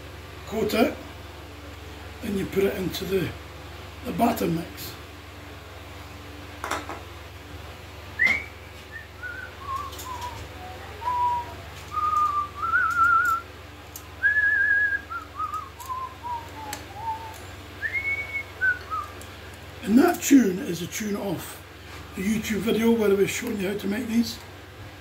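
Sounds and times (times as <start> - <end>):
man whistling a tune: 8.2 - 10.4, 11.0 - 13.4, 14.2 - 19.1.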